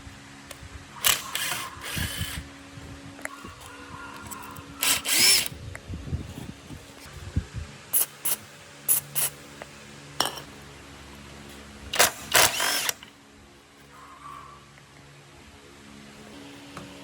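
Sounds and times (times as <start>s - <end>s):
short sharp tool bursts: 1.0s - 2.4s, 4.3s - 5.5s, 7.9s - 9.4s, 12.0s - 13.1s.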